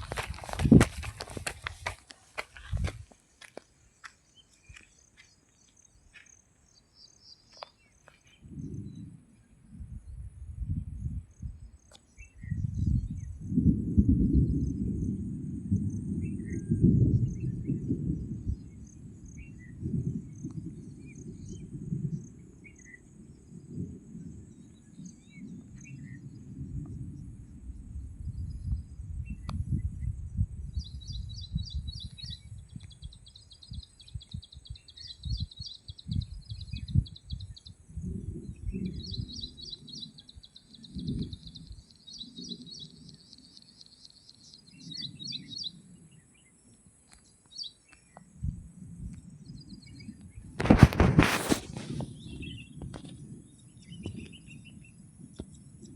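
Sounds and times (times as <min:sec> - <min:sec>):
bird chirps: 0:38.6 - 0:46.5.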